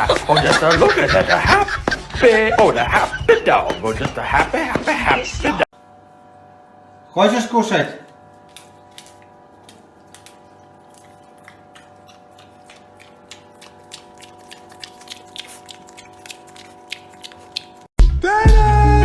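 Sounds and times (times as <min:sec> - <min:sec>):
animal chewing food: 0:08.4 - 0:17.9.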